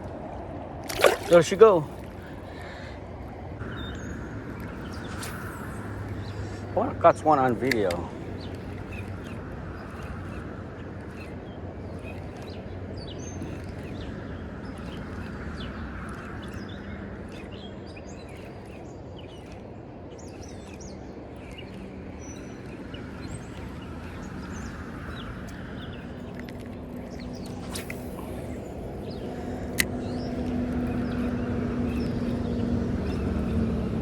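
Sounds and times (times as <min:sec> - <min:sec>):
river water rushing: 0:00.9 - 0:02.0
small birds chirping: 0:00.9 - 0:03.0, 0:03.6 - 0:34.0.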